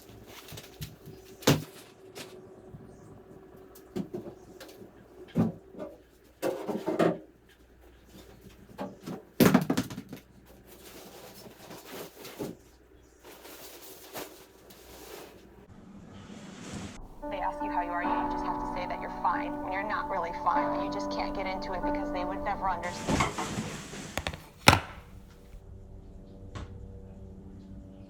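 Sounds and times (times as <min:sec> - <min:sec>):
objects knocking and clattering: 0:24.2 - 0:25.2.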